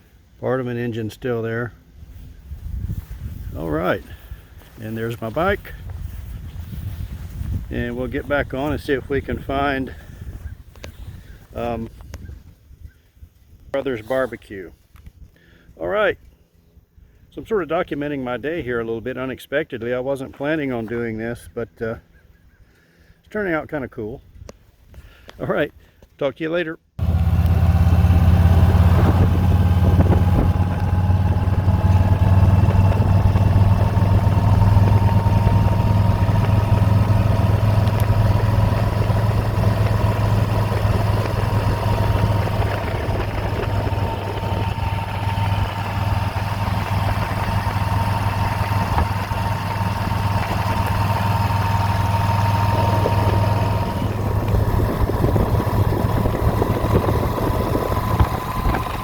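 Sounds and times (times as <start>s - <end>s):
motorcycle engine drone: 1.1s - 12.4s, 27.0s - 59.0s.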